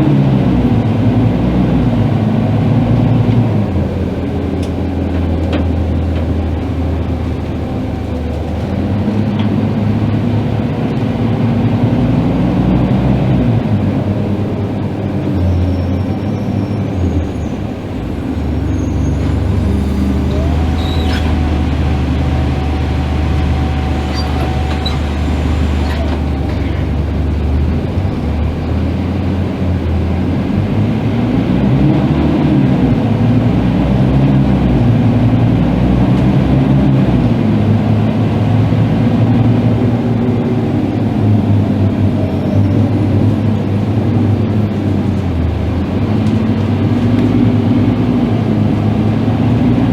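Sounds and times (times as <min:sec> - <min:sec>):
bus diesel engine running: 0:00.0 - 0:49.9.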